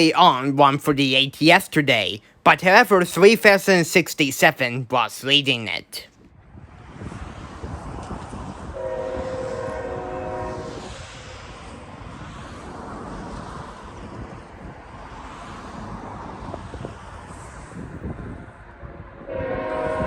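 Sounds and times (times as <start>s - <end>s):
train rumble: 6.5s - 20.0s
locomotive horn blast: 8.8s - 10.9s, 19.2s - 20.0s.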